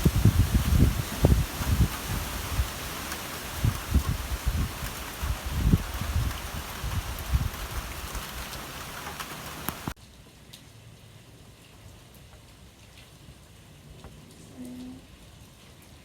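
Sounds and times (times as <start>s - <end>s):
rain pattering: 0.0s - 16.0s.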